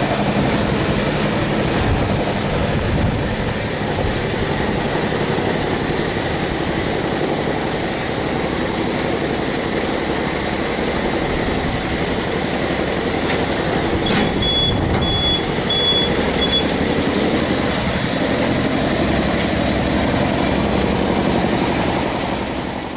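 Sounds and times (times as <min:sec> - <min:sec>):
heavy diesel engine running: 0:00.0 - 0:22.9
warning alarm beeps: 0:14.0 - 0:16.8.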